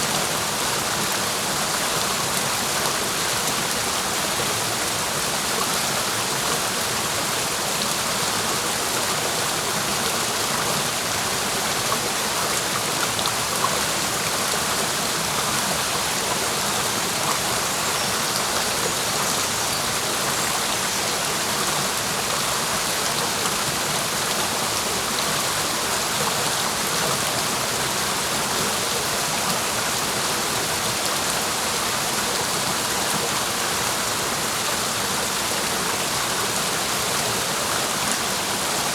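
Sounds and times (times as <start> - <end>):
water rushing over rocks: 0.0 - 38.9.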